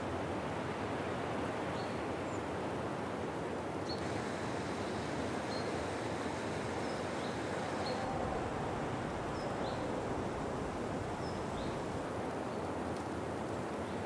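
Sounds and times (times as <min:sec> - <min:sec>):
outdoor background hiss: 0:00.0 - 0:14.0
birds chirping: 0:06.8 - 0:12.0.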